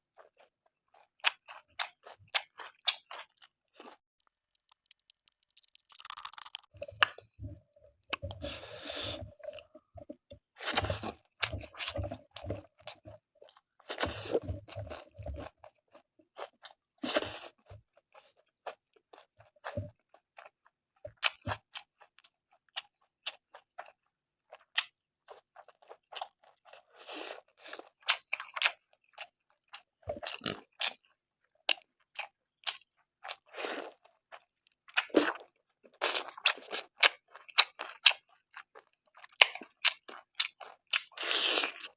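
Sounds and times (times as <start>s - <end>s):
person chewing and crunching food: 0.0s - 41.9s
wet mouth clicks: 4.2s - 7.2s.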